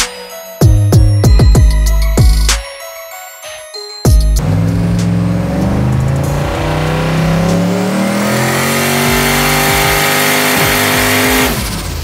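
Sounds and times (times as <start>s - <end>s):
engine revving at full throttle: 4.4s - 12.0s.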